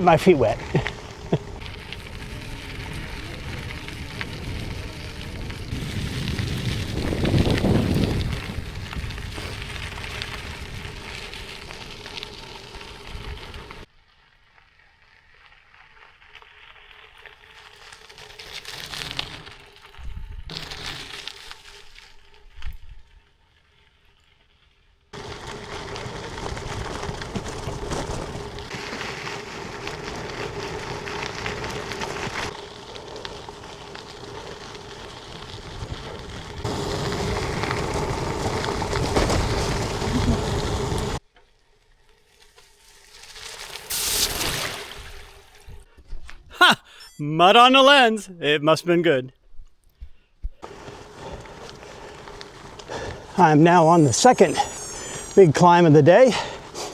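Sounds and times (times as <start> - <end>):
bike tyres crunching on gravel: 0.0 - 45.9, 50.6 - 56.9.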